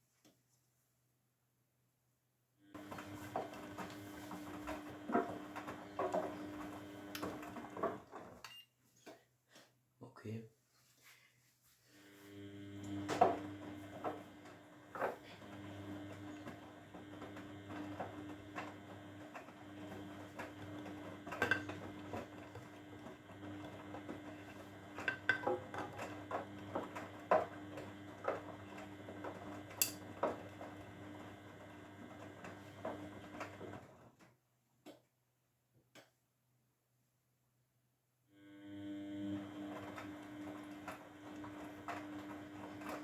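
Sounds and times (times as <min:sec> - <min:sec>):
washing machine motor humming: 0:02.7 - 0:08.4, 0:12.0 - 0:34.2, 0:38.4 - 0:43.0
laundry tumbling in drum: 0:02.8 - 0:08.4.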